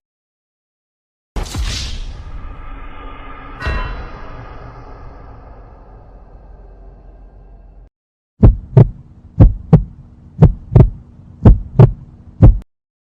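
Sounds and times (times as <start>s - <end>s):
faint steady hum: 8.4s - 12.6s
heartbeat thumps: 8.4s - 12.7s.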